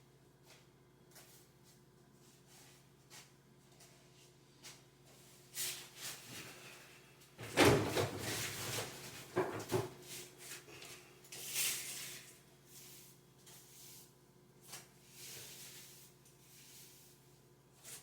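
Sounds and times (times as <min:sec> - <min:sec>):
handling knocks and thumps: 0:07.4 - 0:10.0.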